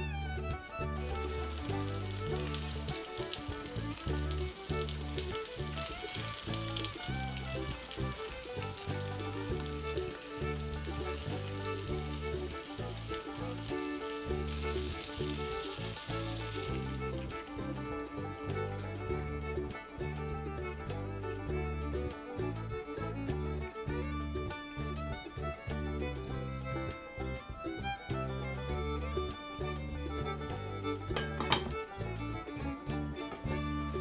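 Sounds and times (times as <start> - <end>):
background music: 0.0 - 34.0
chicken sizzling in a frying pan: 1.2 - 17.3.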